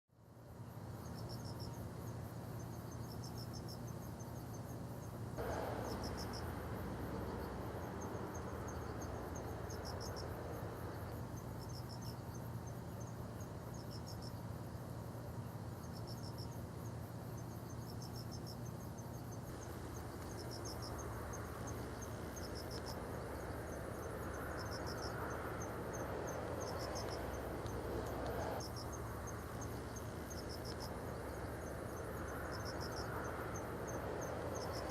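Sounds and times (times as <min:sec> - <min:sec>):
insects chirping in trills: 0:00.2 - 0:34.9
low rumble: 0:05.4 - 0:11.4.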